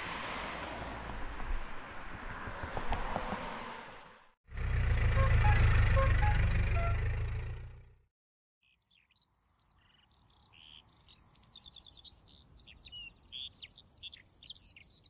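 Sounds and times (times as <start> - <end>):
car passing on cobbles: 0.0 - 8.0
songbirds chirping and singing: 8.6 - 15.0.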